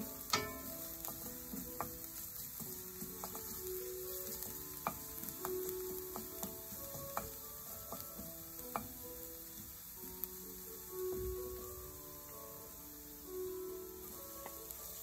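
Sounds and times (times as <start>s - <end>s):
wooden spatula knocking on pan: 0.0s - 11.9s
food sizzling in oil: 0.0s - 15.0s.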